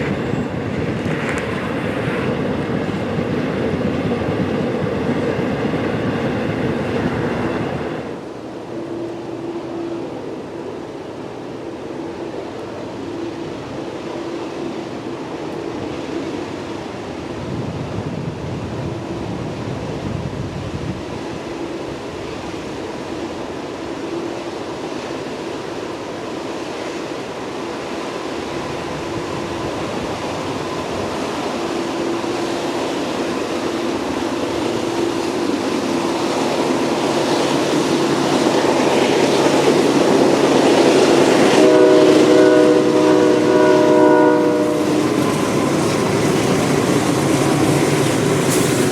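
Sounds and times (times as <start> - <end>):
freight train rolling: 0.0 - 48.9
locomotive horn blast: 41.4 - 45.3.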